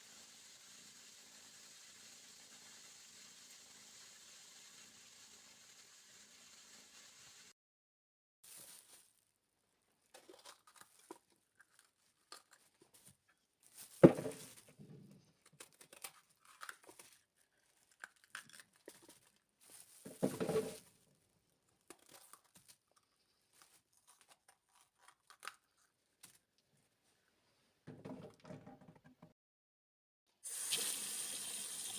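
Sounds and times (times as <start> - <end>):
crinkling tearing rustle: 8.5 - 9.2, 10.1 - 14.7, 15.4 - 20.8, 21.8 - 26.5.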